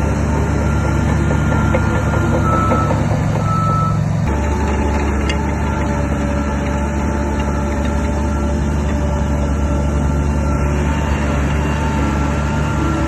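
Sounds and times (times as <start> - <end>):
heavy machinery diesel engine running: 0.0 - 13.0
reversing alarm beeps: 0.4 - 4.6.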